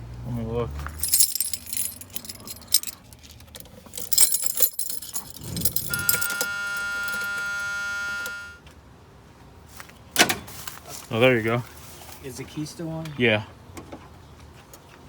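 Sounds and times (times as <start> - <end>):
keys jangling in ignition: 0.8 - 7.5
warning buzzer: 5.9 - 8.6.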